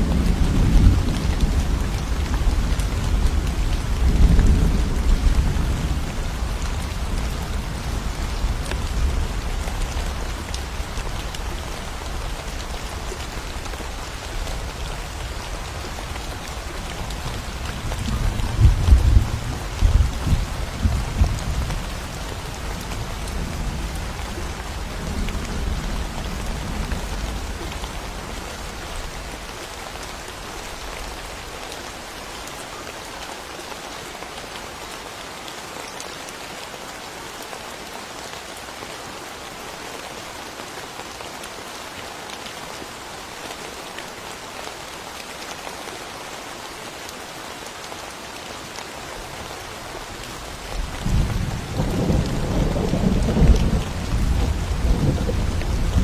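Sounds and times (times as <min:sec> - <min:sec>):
low rumble of thunder: 0:00.0 - 0:29.4, 0:50.5 - 0:56.0
steady rain hiss: 0:00.0 - 0:56.0.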